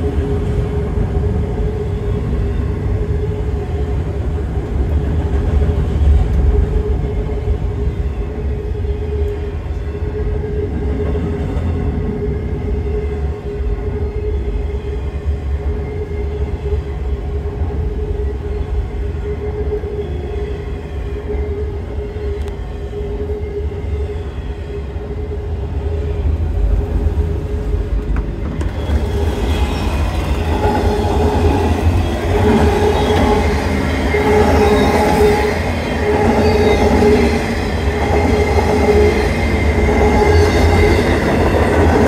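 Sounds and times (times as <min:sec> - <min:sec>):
freight train wheels rumbling: 0:00.0 - 0:42.0.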